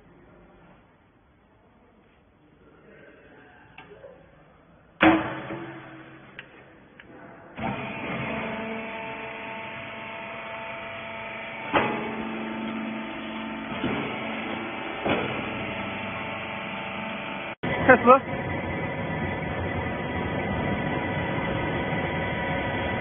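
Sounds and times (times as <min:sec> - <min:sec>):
baler motor and pump humming: 0:07.6 - 0:23.0.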